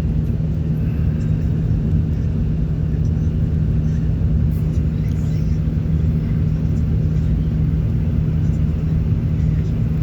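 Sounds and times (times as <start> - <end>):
car engine and tyre rumble: 0.0 - 10.0
constant low hum: 0.0 - 10.0.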